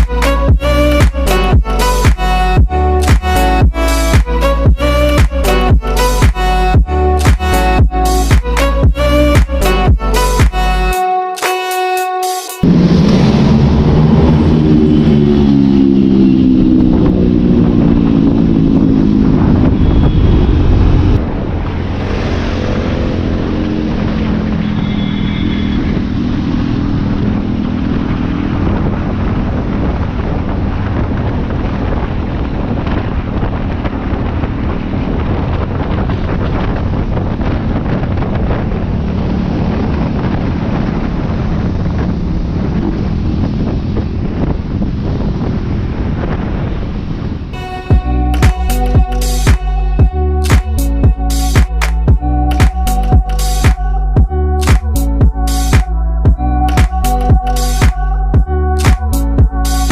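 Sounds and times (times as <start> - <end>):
wind noise on microphone: 0.0 - 11.0, 12.6 - 59.9
motorcycle engine: 12.6 - 59.9.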